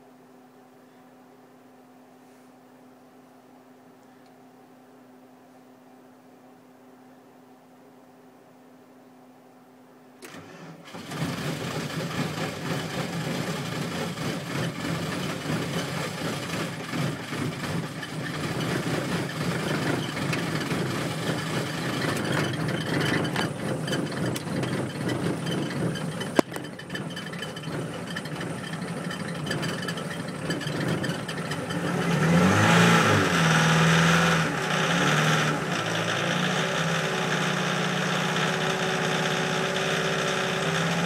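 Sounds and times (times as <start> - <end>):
diesel engine cranking and running: 10.2 - 41.0.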